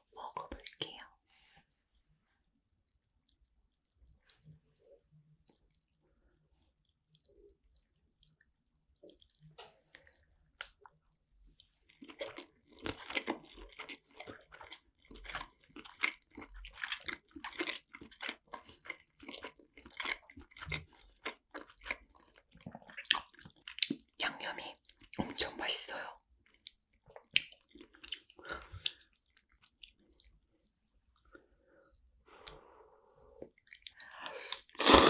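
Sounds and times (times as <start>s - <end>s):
wet chewing: 34.5s - 35.0s.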